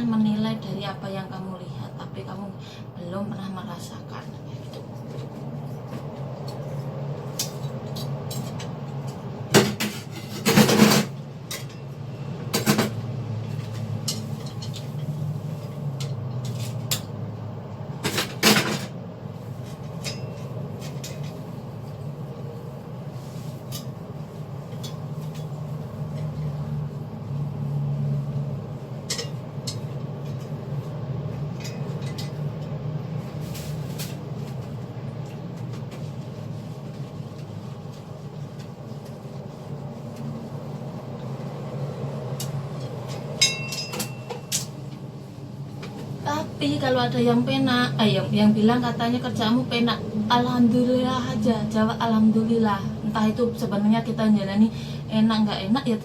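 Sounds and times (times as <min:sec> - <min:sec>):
steady low hum: 0:00.0 - 0:56.0
dishes and utensils clattering: 0:29.1 - 0:30.4, 0:43.4 - 0:44.7.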